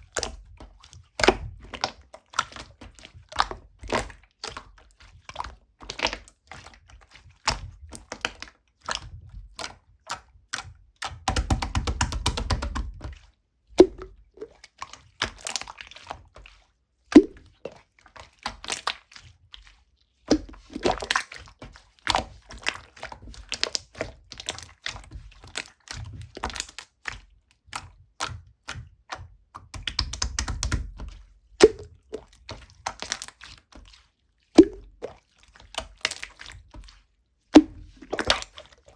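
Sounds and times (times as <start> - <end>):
small clicks and taps on hard objects: 11.3 - 12.9.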